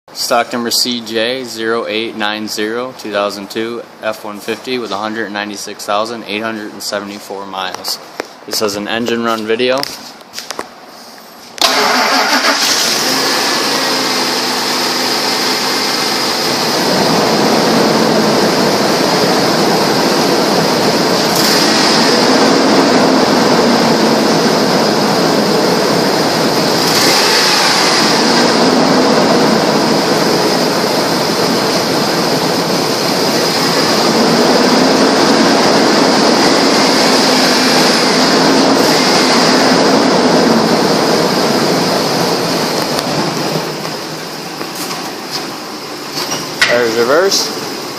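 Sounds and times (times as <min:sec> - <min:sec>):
truck engine starting and running: 0:11.5 - 0:47.9.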